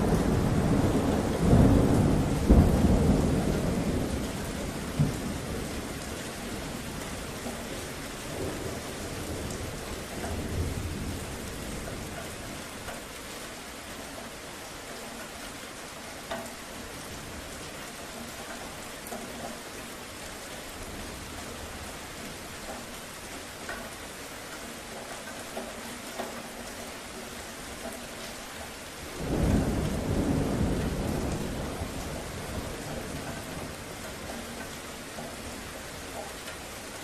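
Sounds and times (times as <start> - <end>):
low thunder rumble: 0.0 - 7.4, 29.0 - 34.1
steady rain: 0.0 - 37.0.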